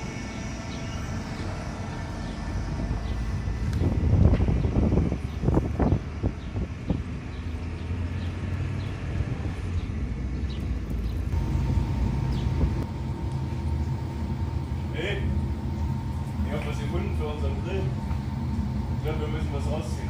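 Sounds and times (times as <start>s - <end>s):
engine rumbling: 0.0s - 20.0s.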